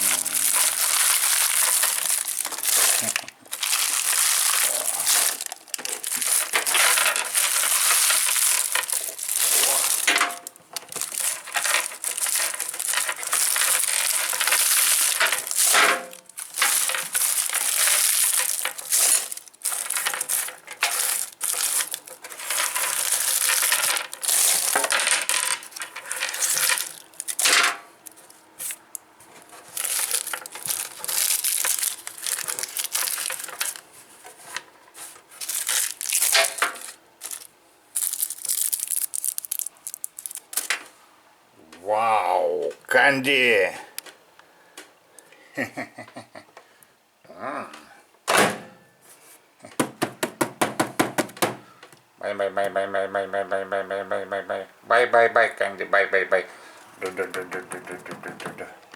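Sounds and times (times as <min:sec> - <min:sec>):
hard candies clattering: 0:00.0 - 0:40.8, 0:57.0 - 0:58.9
sweet wrappers rustling: 0:00.0 - 0:41.0, 0:56.5 - 0:58.9.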